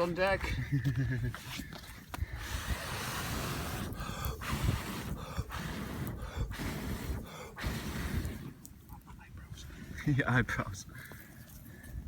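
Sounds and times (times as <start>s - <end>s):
air rushing into charcoal fire: 2.3s - 9.0s.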